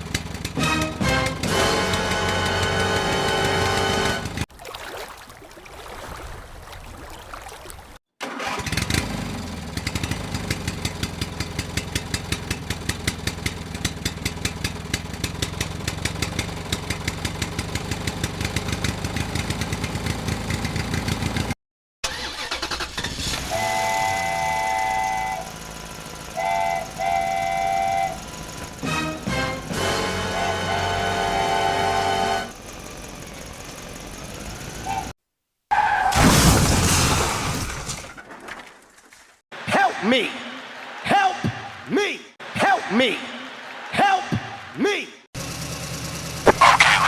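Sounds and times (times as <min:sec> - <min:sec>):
vehicle engine running: 0:00.0 - 0:04.4, 0:08.6 - 0:21.6, 0:23.5 - 0:35.1, 0:45.4 - 0:47.0
horn blasts: 0:00.6 - 0:04.4, 0:23.4 - 0:25.6, 0:26.3 - 0:32.6.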